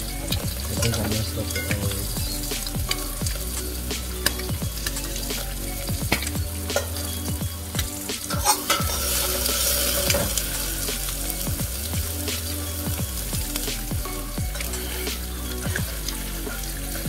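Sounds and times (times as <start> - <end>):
ham sizzling in a pan: 0.0 - 17.0
metal utensil scraping a pan: 0.2 - 11.5.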